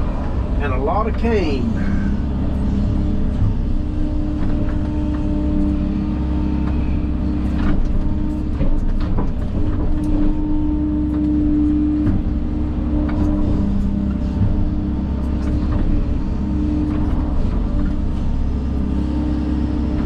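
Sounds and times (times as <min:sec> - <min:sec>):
high steady whine: 0:00.0 - 0:09.2
heavy machine engine running: 0:00.0 - 0:20.0.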